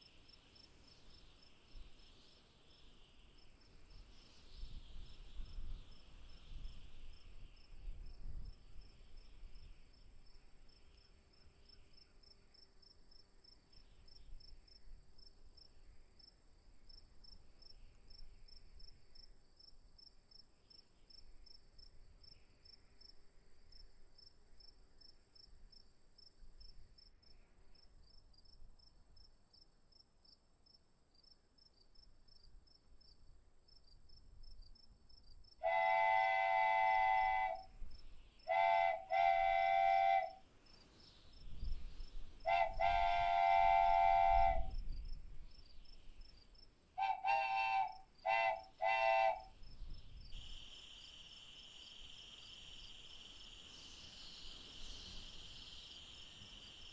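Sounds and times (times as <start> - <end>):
crickets chirping: 0.0 - 56.9.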